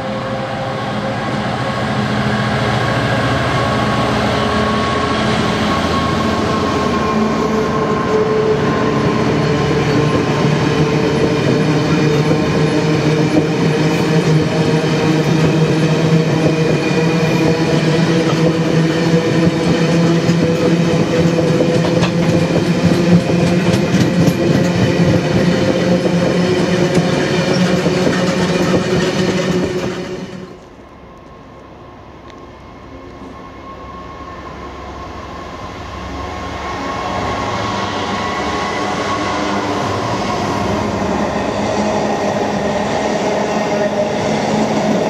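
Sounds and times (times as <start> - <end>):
freight train rolling past: 0.0 - 45.0
wheels clicking over rail joints: 19.5 - 30.8.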